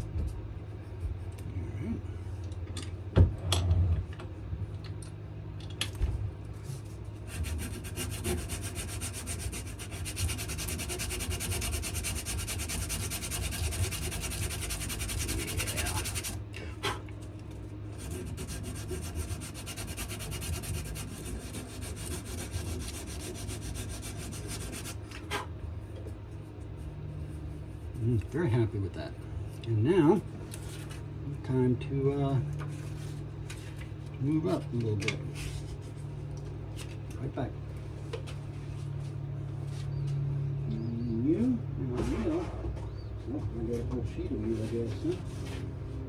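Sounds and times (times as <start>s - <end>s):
sandpaper rubbing on wood: 7.2s - 16.4s, 17.9s - 25.0s.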